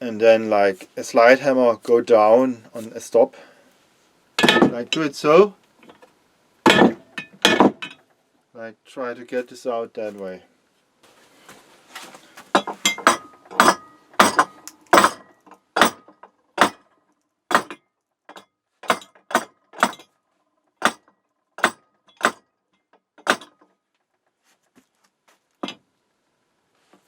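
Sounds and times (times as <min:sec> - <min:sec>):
hammer striking metal: 0:06.7 - 0:08.0, 0:12.6 - 0:16.8, 0:17.5 - 0:20.0, 0:20.8 - 0:22.4, 0:23.2 - 0:23.6.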